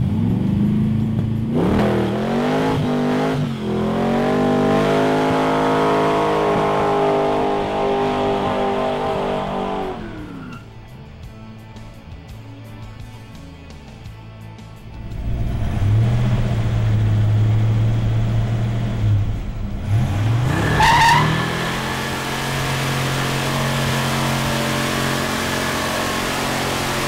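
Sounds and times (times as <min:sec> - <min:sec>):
car engine revving high: 0:00.0 - 0:10.6, 0:14.9 - 0:27.0
tires spinning: 0:00.0 - 0:10.8, 0:14.8 - 0:27.0
tire squeal: 0:02.8 - 0:10.7, 0:18.4 - 0:27.0.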